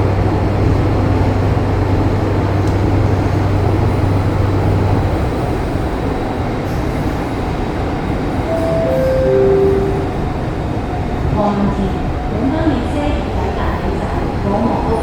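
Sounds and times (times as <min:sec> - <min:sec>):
train rumbling on track: 0:00.0 - 0:15.0
falling chime: 0:08.5 - 0:10.3.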